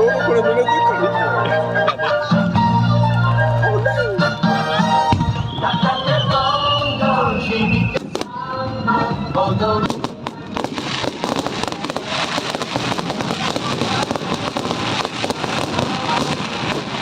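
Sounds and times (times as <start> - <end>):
music playing: 0.0 - 17.0
fireworks crackling: 5.1 - 8.4, 9.7 - 17.0.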